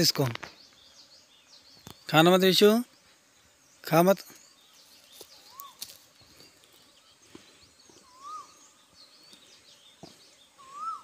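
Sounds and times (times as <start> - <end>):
high bird chirps: 4.3 - 11.0
rising and falling bird whistle: 8.0 - 8.7, 10.6 - 11.0.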